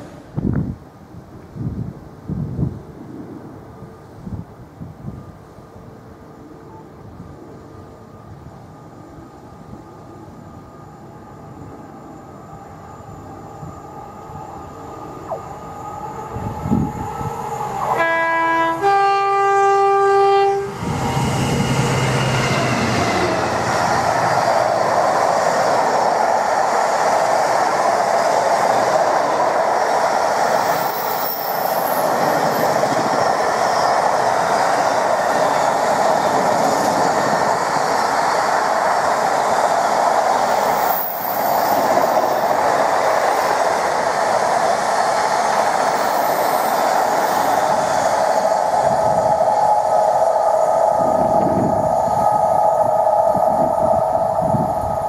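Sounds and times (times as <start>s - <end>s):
freight train passing on rails: 0.0s - 55.0s
two-tone train horn: 17.8s - 20.9s.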